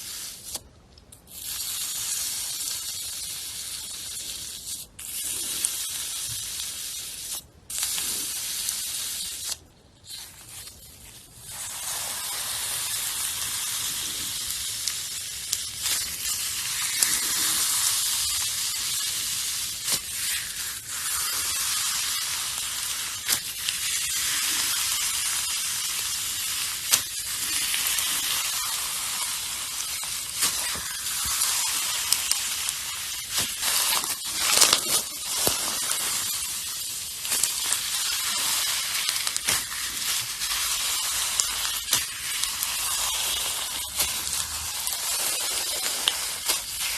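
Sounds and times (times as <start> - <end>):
slime squishing and crackling: 1.2 - 46.9.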